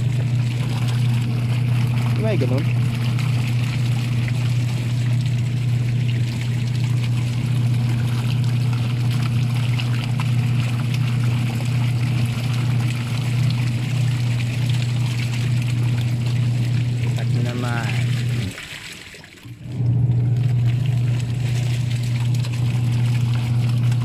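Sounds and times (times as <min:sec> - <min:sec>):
washing machine motor hum: 0:00.0 - 0:24.0
water and clothes churning: 0:00.0 - 0:24.0.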